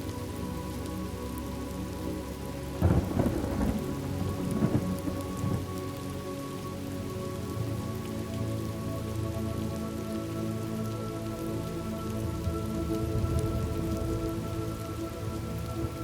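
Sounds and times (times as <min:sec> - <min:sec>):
steady rain: 0:00.0 - 0:16.0
thunder rumbling: 0:02.8 - 0:05.7.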